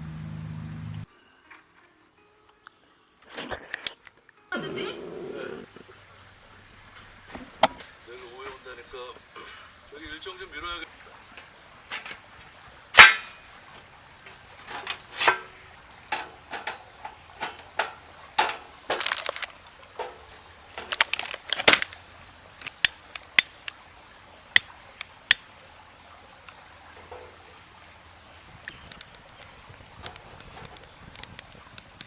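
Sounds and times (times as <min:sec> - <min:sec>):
hard objects clicking and knocking: 0:16.1 - 0:22.0, 0:22.6 - 0:23.8.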